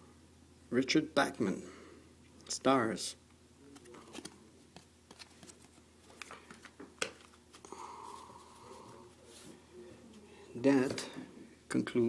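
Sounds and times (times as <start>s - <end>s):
trading cards rustling and clicking: 3.7s - 8.3s.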